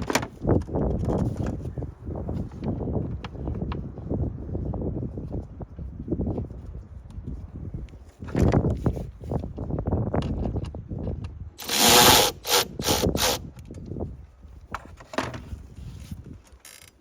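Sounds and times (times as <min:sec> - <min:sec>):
loud rasping bursts: 0:11.6 - 0:13.5.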